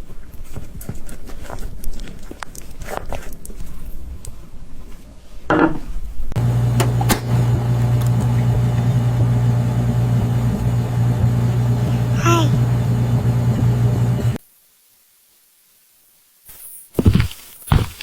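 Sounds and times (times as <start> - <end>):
low motor hum: 6.4 - 14.4.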